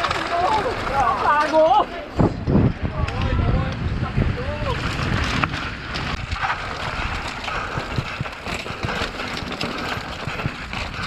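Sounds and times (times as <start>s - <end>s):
bike rushing over rough ground: 4.8s - 11.0s
bike rattling and knocking: 4.9s - 11.0s.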